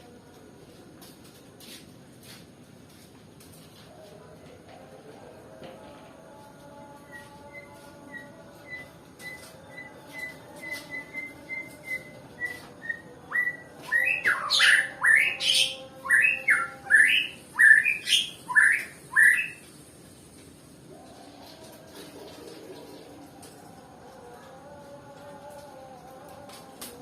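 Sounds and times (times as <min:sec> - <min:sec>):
bird calling and singing: 0:07.2 - 0:19.6.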